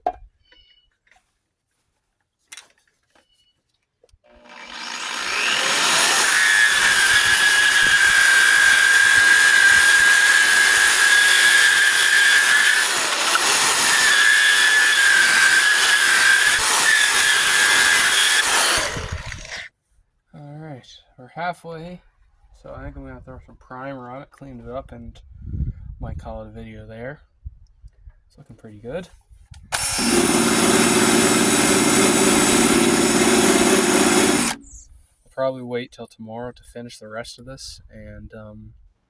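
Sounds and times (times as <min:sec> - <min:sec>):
power sander whining: 0:04.3 - 0:19.7, 0:29.7 - 0:34.8.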